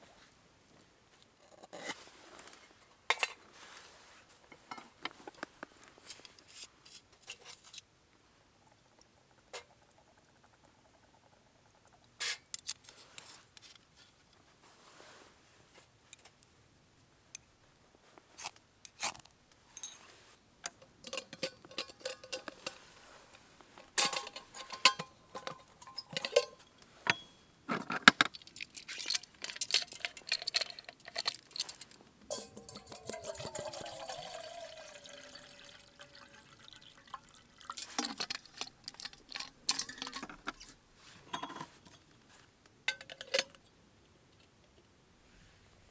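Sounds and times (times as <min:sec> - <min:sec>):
light metallic clinks: 0:31.4 - 0:34.3.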